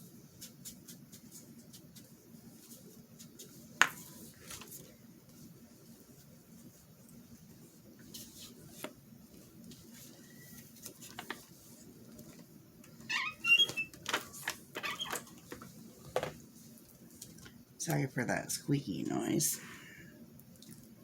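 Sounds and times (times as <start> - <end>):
high wavering squeaks: 13.1 - 13.9.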